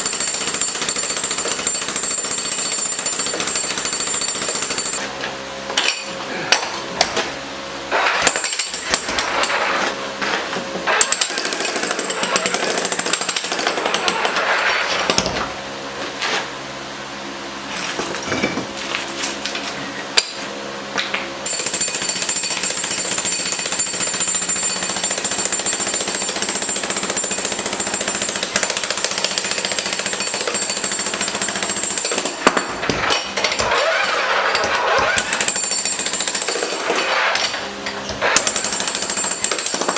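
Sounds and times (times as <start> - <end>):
jackhammer chipping concrete: 0.0 - 5.0, 7.9 - 15.5, 21.4 - 39.9.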